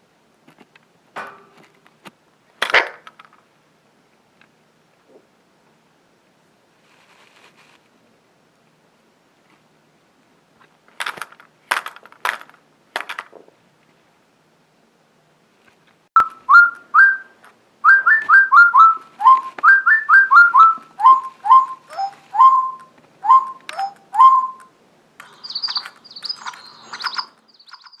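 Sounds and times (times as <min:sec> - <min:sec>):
bird whistling notes: 0:16.2 - 0:28.0
thin high bird chirps: 0:16.2 - 0:28.0.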